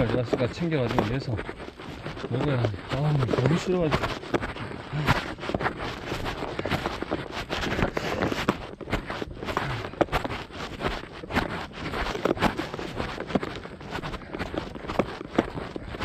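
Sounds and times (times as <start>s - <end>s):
camera jostling: 0.0s - 16.0s
running footsteps on a trail: 0.0s - 16.0s.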